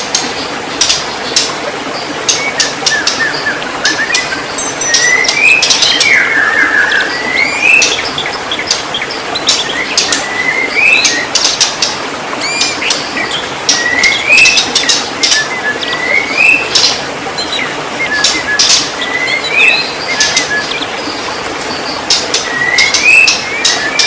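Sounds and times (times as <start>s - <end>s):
bird singing whistled phrase: 22.5s - 24.0s.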